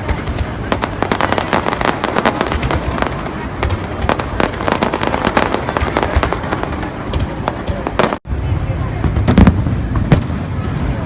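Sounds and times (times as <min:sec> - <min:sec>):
fireworks cracks and pops: 0:00.0 - 0:08.2.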